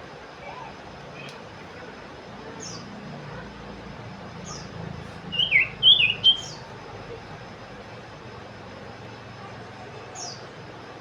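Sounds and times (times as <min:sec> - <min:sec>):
loud bird chirping: 0:04.4 - 0:06.7
bird calling high notes: 0:05.3 - 0:06.7.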